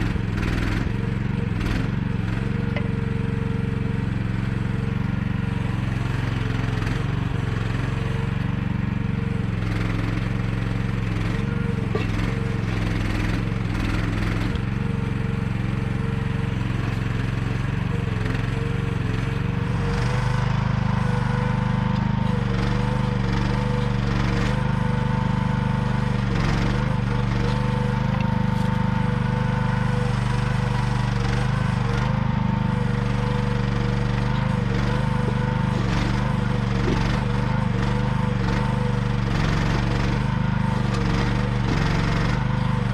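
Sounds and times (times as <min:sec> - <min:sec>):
small excavator engine running: 0:00.0 - 0:42.9
digging knocks and scrapes: 0:26.4 - 0:28.8.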